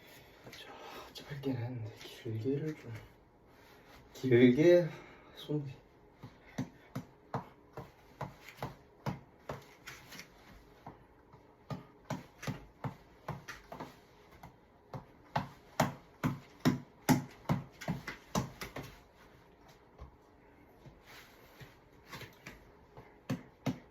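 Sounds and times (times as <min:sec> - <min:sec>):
reflex ball being punched: 0:06.1 - 0:09.9, 0:10.5 - 0:19.1, 0:22.3 - 0:23.9.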